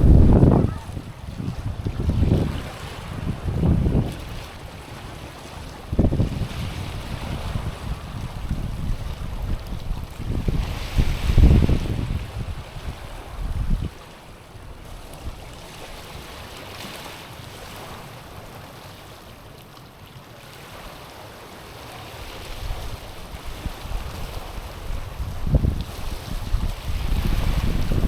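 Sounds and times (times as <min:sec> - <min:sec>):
wind buffeting microphone: 0:00.0 - 0:14.0, 0:22.4 - 0:28.0
small waves on stony shore: 0:00.0 - 0:28.0.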